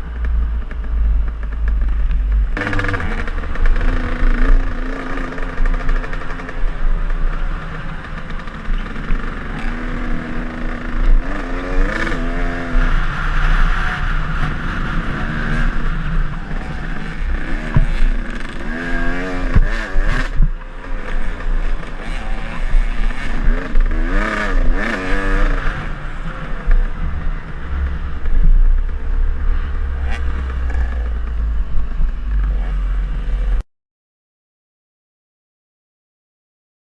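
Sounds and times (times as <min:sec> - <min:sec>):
dirt bike engine revving: 0:00.0 - 0:33.6.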